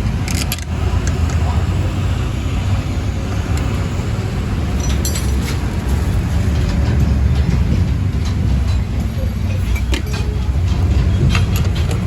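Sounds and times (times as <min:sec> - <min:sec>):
low vehicle rumble: 0:00.0 - 0:12.0.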